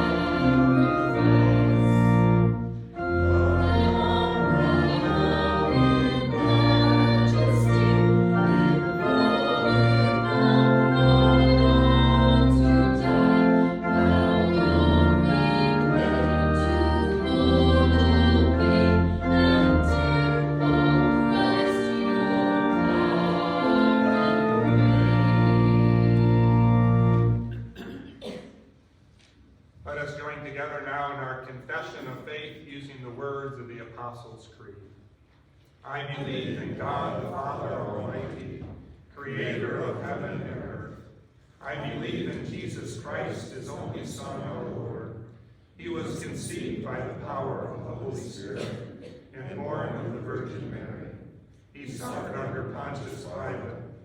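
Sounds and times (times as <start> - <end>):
voices singing: 0.0 - 27.2, 35.9 - 41.0, 41.6 - 45.1, 45.8 - 51.2, 51.8 - 53.8
church organ chords: 0.0 - 27.9.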